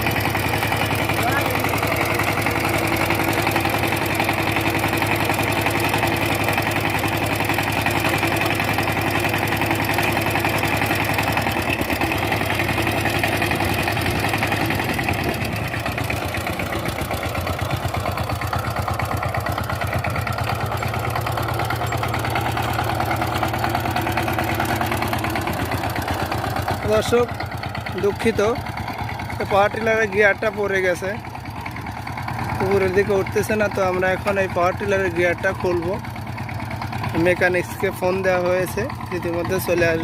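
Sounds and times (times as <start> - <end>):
diesel tiller engine chugging: 0.0 - 40.0.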